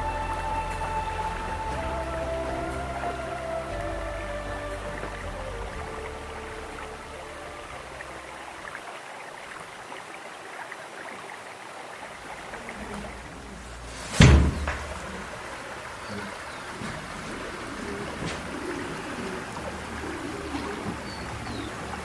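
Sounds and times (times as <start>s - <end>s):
stream water rushing: 0.0s - 22.0s
sharp loud thump: 14.0s - 15.0s.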